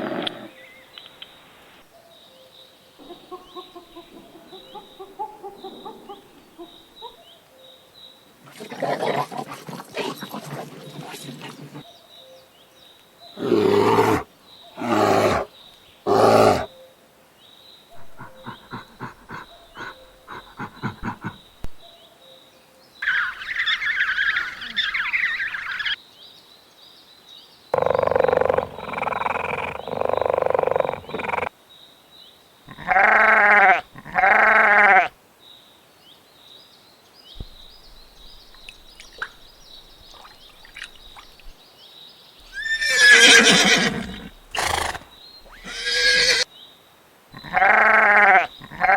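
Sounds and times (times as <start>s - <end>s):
animal calls: 3.0s - 7.3s, 13.4s - 16.7s, 17.9s - 21.9s, 23.0s - 26.0s, 27.8s - 31.5s, 32.7s - 35.1s, 37.4s - 41.6s, 42.4s - 46.5s, 47.4s - 48.9s
bleat-like calls: 32.7s - 35.1s, 42.5s - 46.4s, 47.4s - 48.9s.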